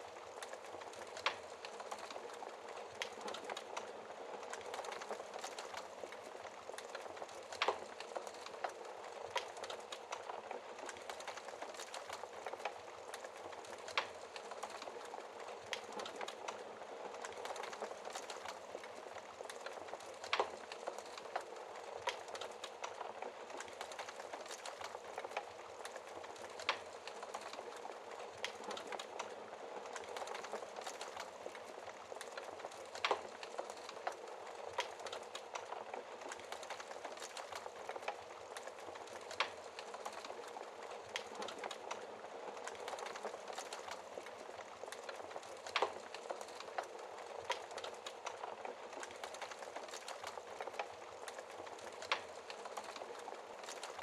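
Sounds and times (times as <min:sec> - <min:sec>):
rain hiss: 0:00.0 - 0:54.0
wood fire crackling and popping: 0:00.0 - 0:54.0.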